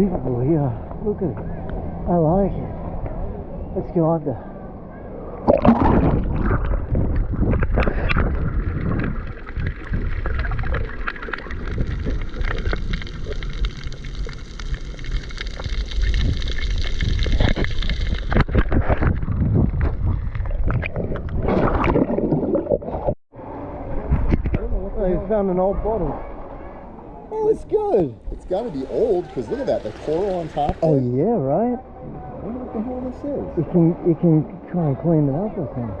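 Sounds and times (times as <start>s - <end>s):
muffled underwater rumble: 5.3s - 23.1s
gurgling bubbles: 5.4s - 23.2s.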